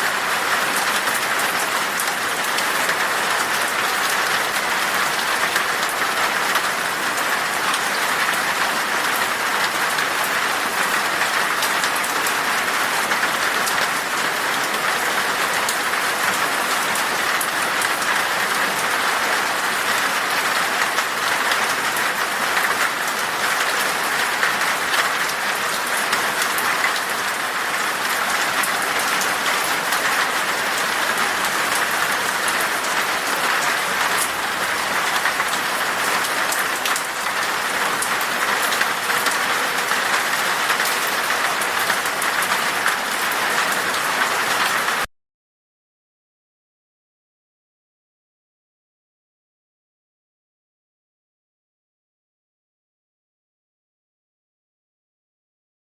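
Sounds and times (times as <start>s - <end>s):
rain falling in a forest: 0.0s - 45.1s.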